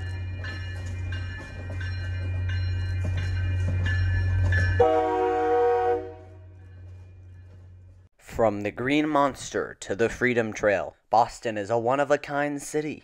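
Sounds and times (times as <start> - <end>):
crossing bell dinging: 0.0 - 8.1
train low rumble: 0.0 - 8.1
train horn blast: 4.8 - 6.6.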